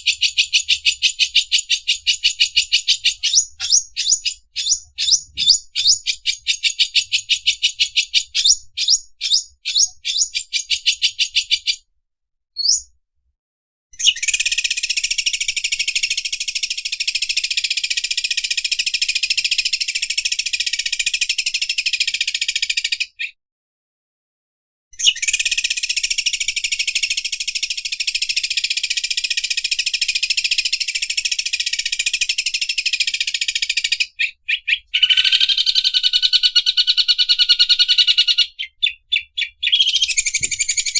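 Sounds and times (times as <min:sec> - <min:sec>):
bird singing high chirps and buzzing trills: 0:01.1 - 0:11.5.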